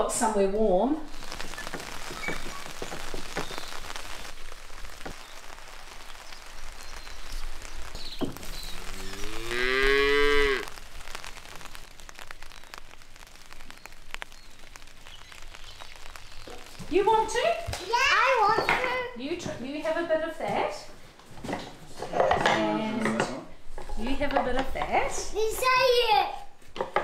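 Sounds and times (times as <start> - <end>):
cow mooing: 8.8 - 10.7.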